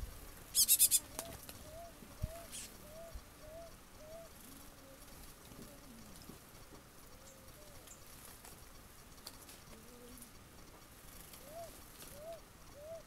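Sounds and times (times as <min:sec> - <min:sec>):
faint bird calling: 0:00.5 - 0:06.3, 0:07.0 - 0:08.0, 0:09.6 - 0:10.4, 0:11.1 - 0:13.0.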